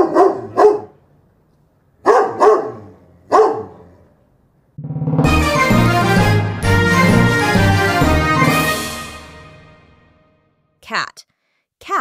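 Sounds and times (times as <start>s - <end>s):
dog barking: 0.0s - 1.0s, 2.0s - 3.9s.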